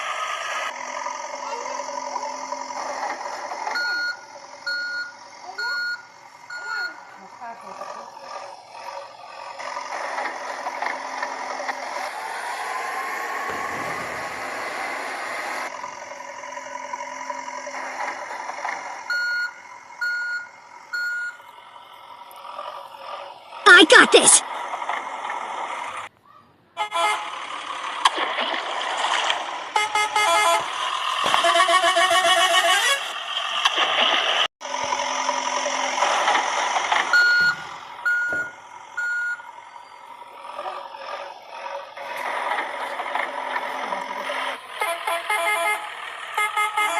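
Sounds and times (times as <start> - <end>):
toy truck engine sound: 0.0 - 26.1, 26.8 - 46.9
toy vehicle electronic horn beeping: 26.8 - 27.4, 29.7 - 33.2, 44.7 - 46.9.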